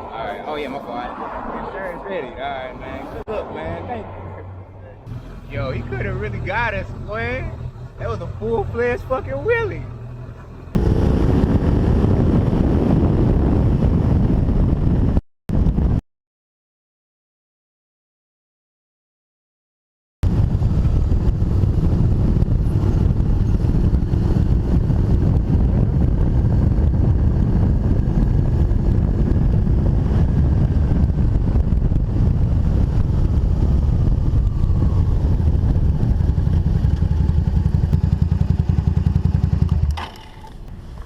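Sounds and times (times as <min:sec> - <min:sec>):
motorcycle engine running: 0:05.1 - 0:13.5, 0:20.3 - 0:41.0.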